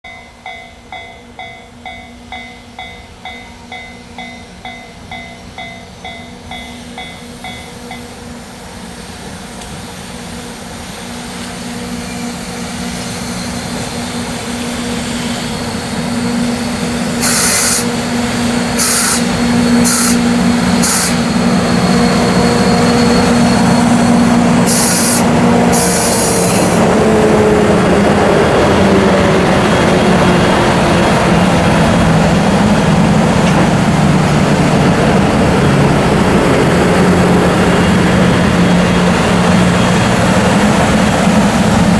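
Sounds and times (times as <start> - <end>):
warning bell ringing: 0.1 - 8.2
electric locomotives running: 0.1 - 41.9
compressed-air hiss: 17.2 - 17.9, 18.8 - 21.2, 24.6 - 26.8.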